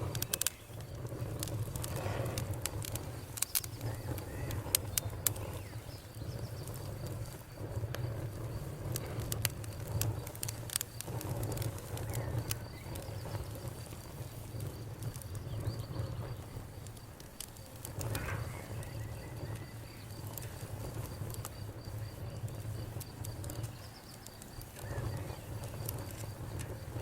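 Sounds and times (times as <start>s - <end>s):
campfire crackling and snapping: 0.0s - 27.0s
low fire rumble: 0.0s - 27.0s.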